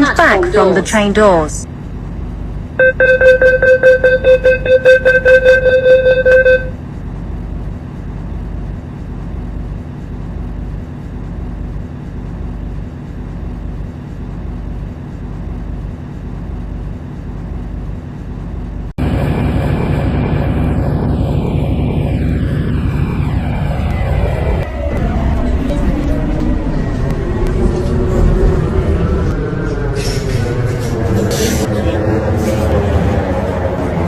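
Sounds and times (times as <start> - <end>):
train interior rumble: 0.0 - 34.0
rapid electronic beeps: 2.8 - 6.7
whine falling in pitch: 2.8 - 6.7, 19.0 - 29.8.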